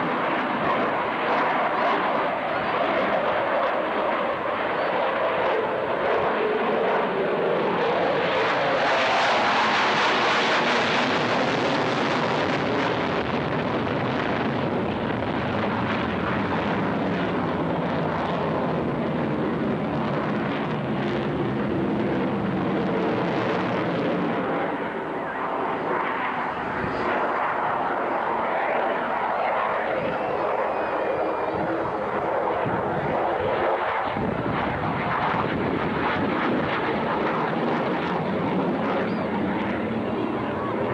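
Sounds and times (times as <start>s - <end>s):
jet fighter engine roar: 0.0s - 40.9s.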